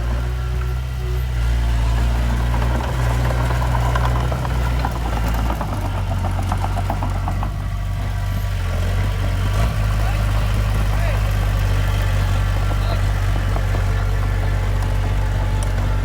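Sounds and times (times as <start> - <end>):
heavy diesel engine running: 0.0 - 16.0
light rapid clatter: 1.4 - 16.0.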